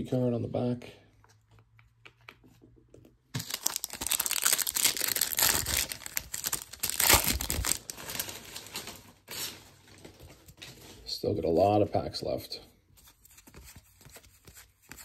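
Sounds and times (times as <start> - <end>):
foil wrapper crinkling and tearing: 3.4 - 10.2.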